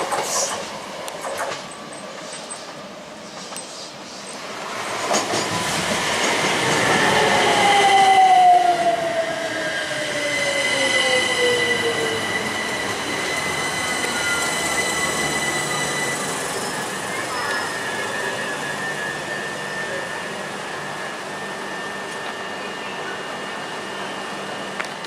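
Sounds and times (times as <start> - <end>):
train running on rails: 0.0 - 25.0
high wheel squeal: 10.2 - 20.4.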